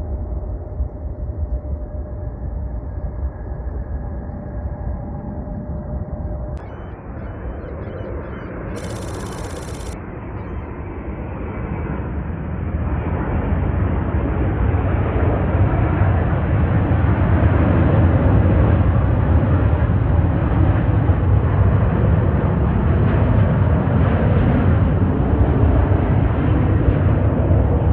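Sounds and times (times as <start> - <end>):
jet airliner engines rumbling: 0.1 - 27.9.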